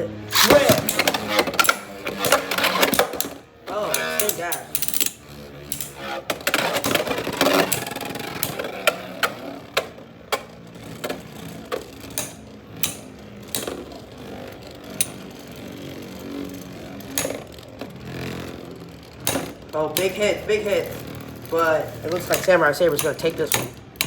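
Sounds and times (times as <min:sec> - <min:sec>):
spinning tops whirring: 0:00.0 - 0:24.0.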